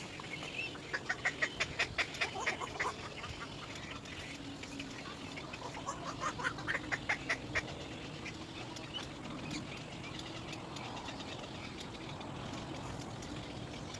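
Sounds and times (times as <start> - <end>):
bird chick crying: 5.1 - 7.4.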